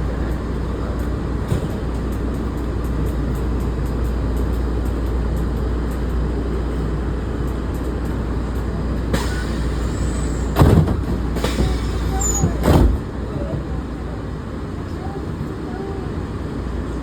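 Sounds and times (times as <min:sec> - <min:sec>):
monorail car rumble: 0:00.0 - 0:17.0.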